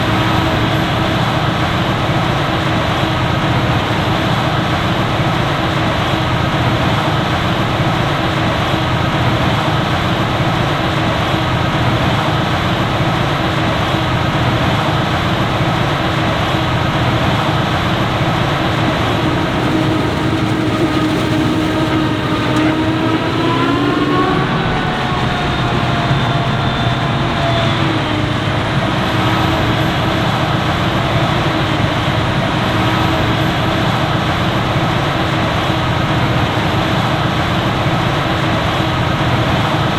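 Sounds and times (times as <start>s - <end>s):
heavy farm machinery running: 0.0s - 39.9s
machine engine passing: 16.7s - 33.4s.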